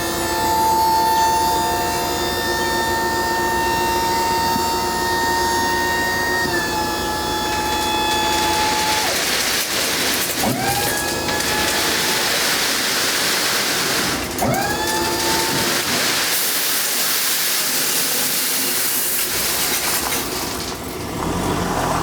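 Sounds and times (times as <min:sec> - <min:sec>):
hydraulic gear whining: 0:00.0 - 0:16.4.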